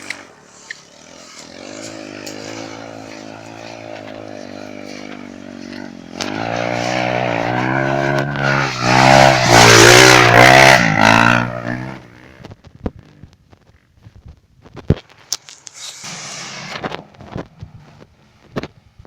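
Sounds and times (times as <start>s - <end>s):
trail motorcycle engine revving: 0.0s - 13.3s.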